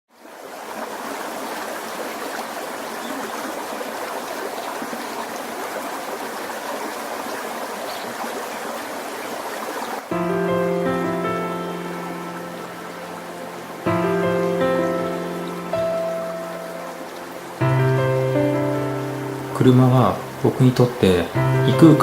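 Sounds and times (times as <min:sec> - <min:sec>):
water running over rocks: 0:00.1 - 0:22.0
music: 0:10.1 - 0:22.0.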